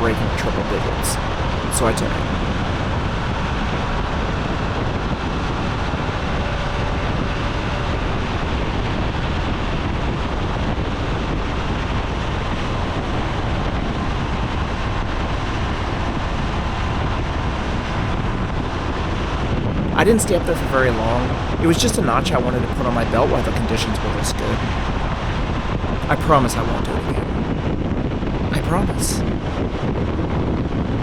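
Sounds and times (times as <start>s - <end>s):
wind rushing over microphone: 24.4s - 31.0s.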